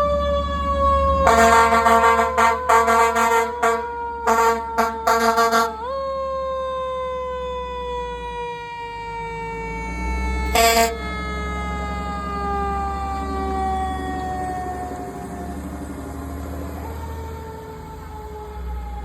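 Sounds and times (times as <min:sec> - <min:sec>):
truck engine rumbling: 0:00.0 - 0:06.4, 0:07.4 - 0:19.0
siren winding down: 0:00.0 - 0:19.0
air horn blast: 0:01.2 - 0:05.9, 0:10.5 - 0:11.1.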